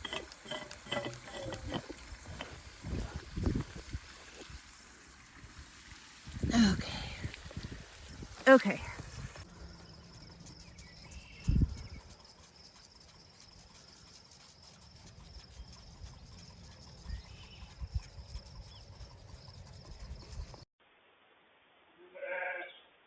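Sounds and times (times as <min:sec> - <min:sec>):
distant bird calls: 0:09.6 - 0:20.6.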